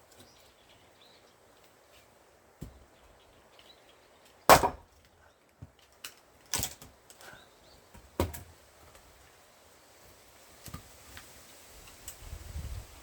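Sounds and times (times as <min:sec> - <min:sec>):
axe striking log: 0:04.5 - 0:04.9.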